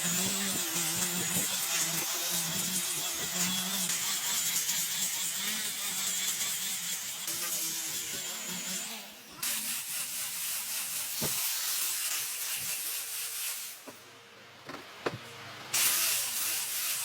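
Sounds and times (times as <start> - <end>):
tool hissing across wood: 9.4 - 14.0.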